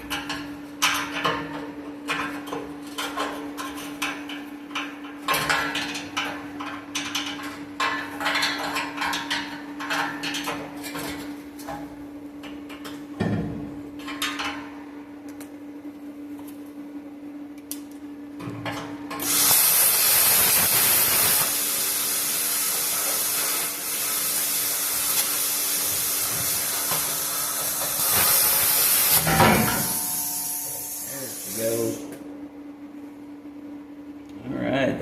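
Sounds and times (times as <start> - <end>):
plasma cutter hiss: 19.2 - 32.1.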